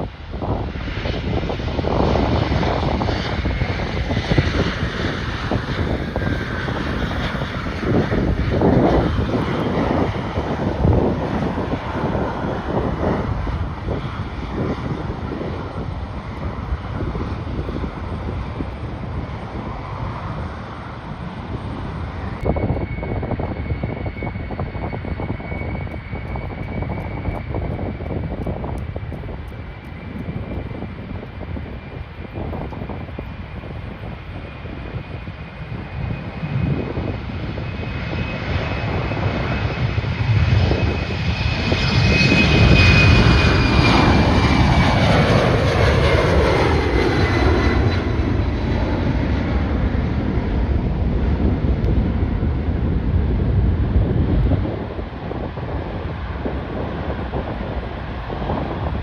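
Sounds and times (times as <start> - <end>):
airliner engine noise: 0.0 - 59.0
wind buffeting microphone: 0.0 - 59.0.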